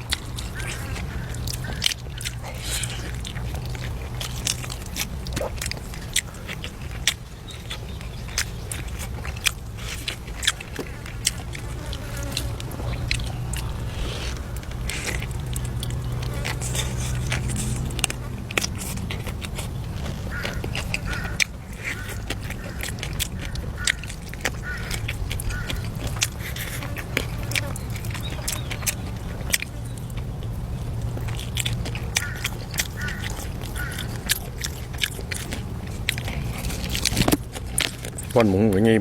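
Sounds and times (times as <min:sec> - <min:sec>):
person chewing and biting: 0:00.0 - 0:38.5
steady low hum: 0:00.0 - 0:39.0.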